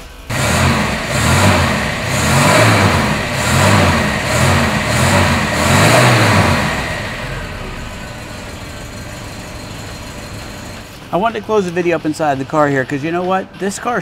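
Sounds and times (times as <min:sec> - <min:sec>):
car engine idling: 0:00.0 - 0:11.6
car engine revving: 0:00.3 - 0:11.0.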